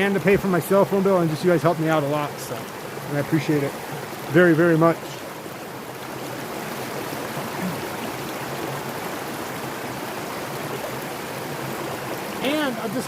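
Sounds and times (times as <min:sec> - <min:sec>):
stream rushing water: 0:00.0 - 0:13.0.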